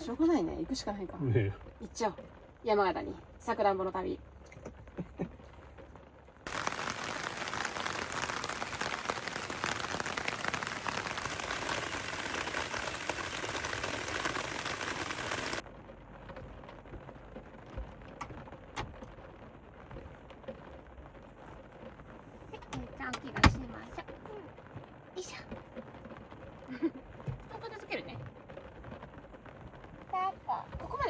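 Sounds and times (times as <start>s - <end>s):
heavy rain: 0.0s - 31.0s.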